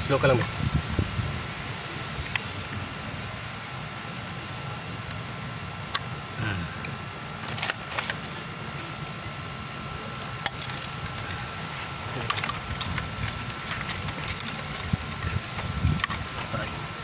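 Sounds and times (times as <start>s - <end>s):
steady low hum: 0.0s - 17.0s
tools and parts clicking: 10.4s - 11.4s, 12.2s - 16.5s.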